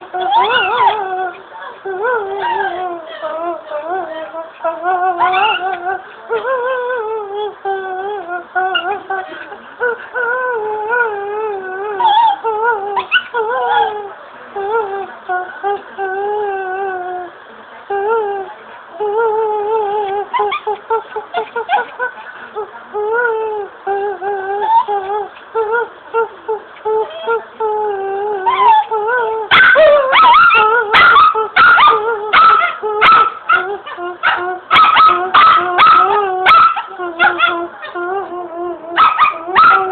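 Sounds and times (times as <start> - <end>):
dog whining: 0.1 - 1.5, 2.1 - 3.2, 4.0 - 6.0, 10.2 - 14.1, 24.6 - 25.4, 28.4 - 38.3, 38.9 - 39.9.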